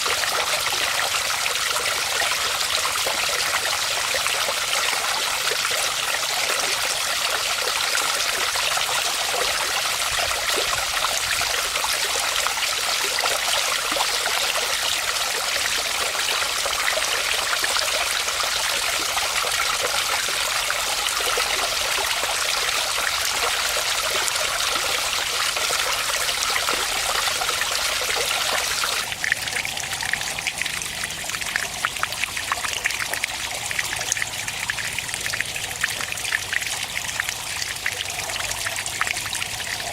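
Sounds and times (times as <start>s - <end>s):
water trickling and dripping: 0.0s - 39.9s
waterfall splashing into pond: 0.0s - 39.9s.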